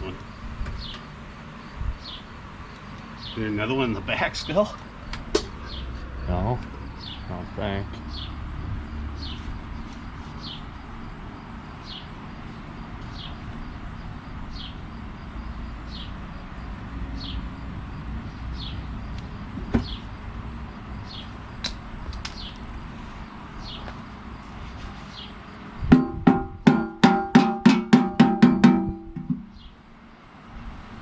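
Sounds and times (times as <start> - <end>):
steady background noise: 0.0 - 31.0
sharp ringing strikes: 25.9 - 29.6.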